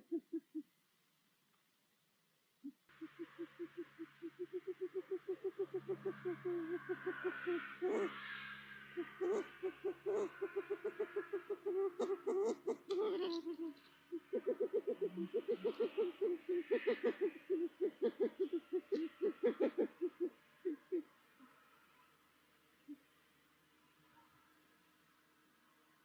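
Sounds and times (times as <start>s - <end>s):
owl hooting: 0.0s - 0.7s, 2.6s - 21.8s, 22.8s - 23.1s.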